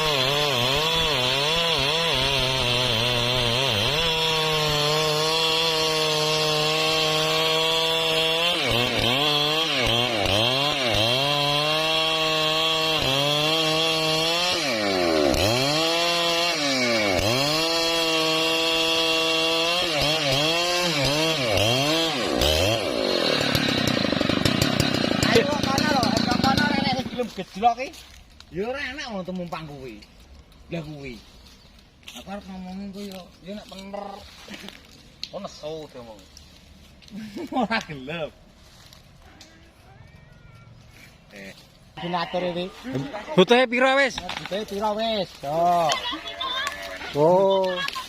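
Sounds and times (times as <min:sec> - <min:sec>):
chainsaw cutting wood: 0:00.0 - 0:27.4, 0:44.0 - 0:48.0.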